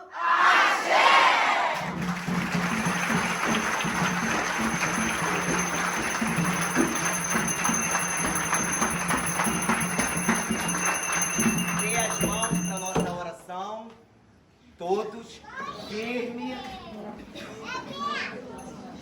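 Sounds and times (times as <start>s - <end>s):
jingling bells or rattles: 2.6s - 13.2s.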